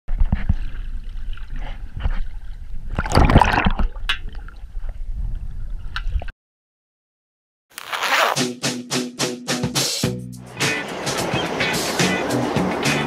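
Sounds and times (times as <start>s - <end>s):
underwater gurgling and sloshing: 0.1s - 6.3s.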